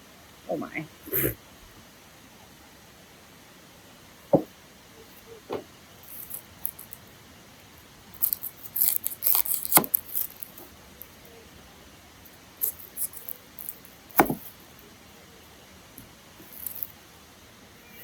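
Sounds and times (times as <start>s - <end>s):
knocks on cutting board: 4.3s - 4.5s, 14.2s - 14.4s.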